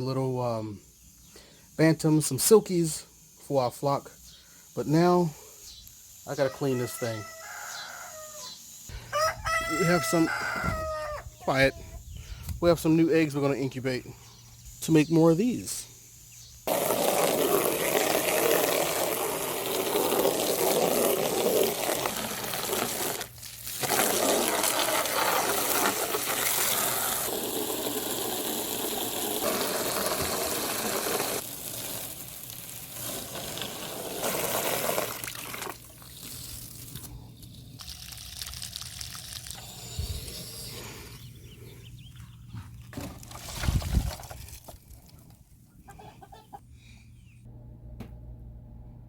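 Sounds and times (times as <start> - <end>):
water gushing and splashing: 16.7 - 37.0.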